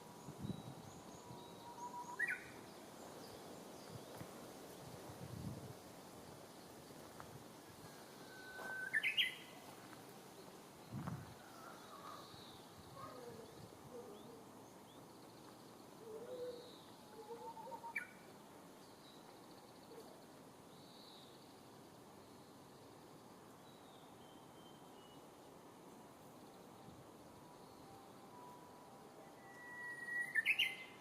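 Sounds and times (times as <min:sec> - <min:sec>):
bush warbler singing: 0:00.0 - 0:04.4, 0:08.2 - 0:09.7, 0:29.4 - 0:31.0
faint chirps of other birds: 0:00.0 - 0:04.9, 0:06.3 - 0:31.0.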